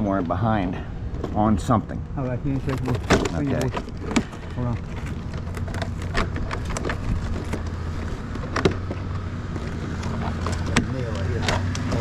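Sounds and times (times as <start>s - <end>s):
vinyl siding clicks and knocks: 2.5s - 12.0s.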